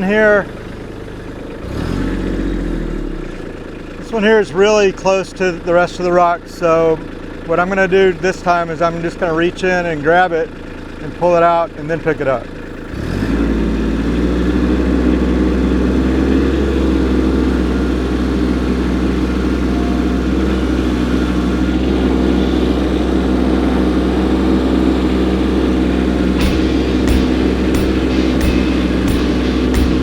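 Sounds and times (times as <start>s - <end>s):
tractor diesel engine running: 0.0s - 30.0s
sharp knocks: 26.4s - 30.0s.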